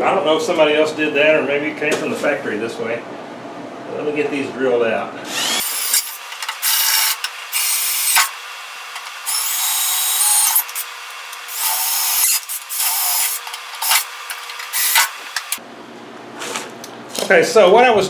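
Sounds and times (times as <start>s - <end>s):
power drill grinding through rivets: 5.3s - 15.6s.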